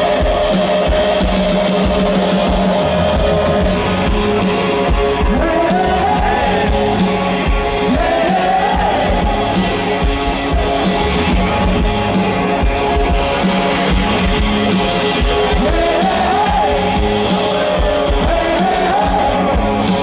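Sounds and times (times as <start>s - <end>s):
rock music with strummed guitars: 0.0s - 20.0s
person singing: 5.2s - 10.8s, 15.2s - 20.0s.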